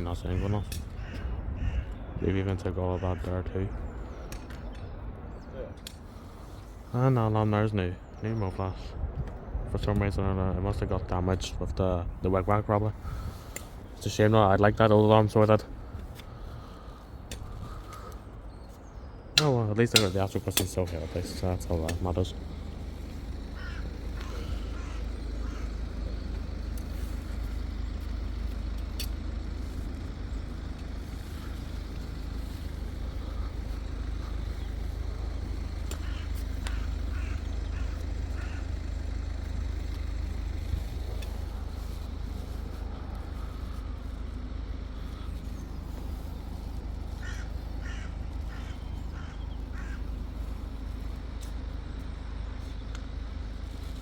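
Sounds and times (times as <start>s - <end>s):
steady low rumble: 0.0s - 54.0s
crow cawing: 0.2s - 2.0s, 16.3s - 18.3s, 21.9s - 51.6s.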